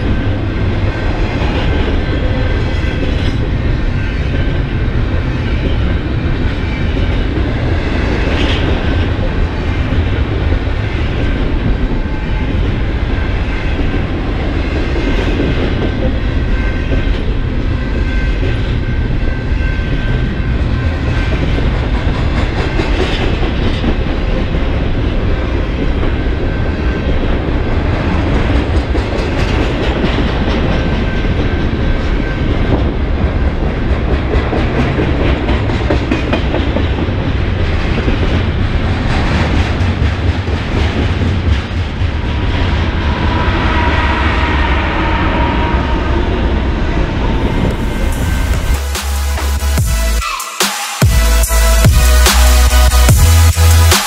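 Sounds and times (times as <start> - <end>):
freight train wheels rumbling: 0.0 - 50.2.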